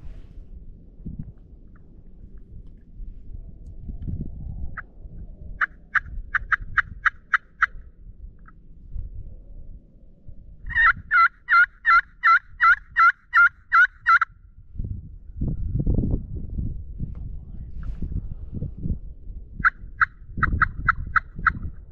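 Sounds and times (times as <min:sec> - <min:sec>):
turkey yelps: 0:05.6 - 0:07.8, 0:10.7 - 0:14.3, 0:19.6 - 0:21.7.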